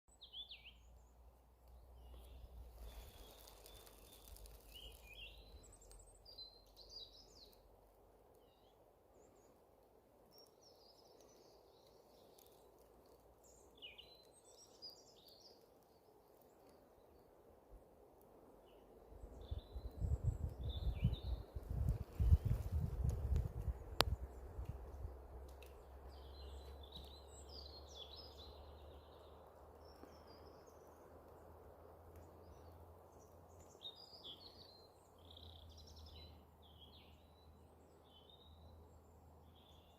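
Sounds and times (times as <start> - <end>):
faint outdoor background noise: 0.1 - 39.9.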